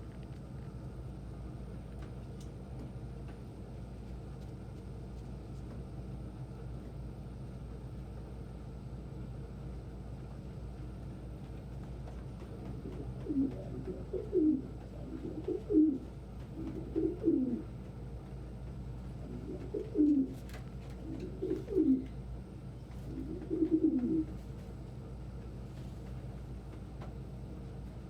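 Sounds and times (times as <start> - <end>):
pigeon cooing: 12.7 - 17.7, 19.2 - 20.4, 21.0 - 22.2, 23.1 - 24.4.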